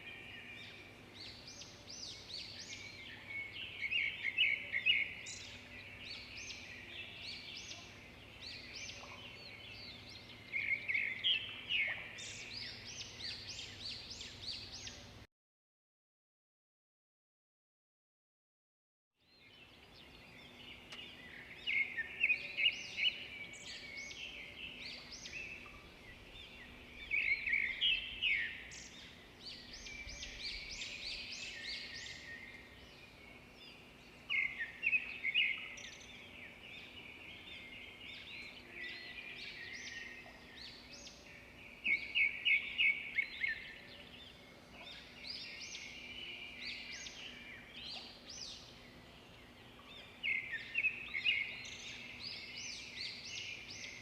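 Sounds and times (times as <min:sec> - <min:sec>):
songbirds chirping and singing: 0:00.0 - 0:15.2, 0:19.2 - 0:54.0.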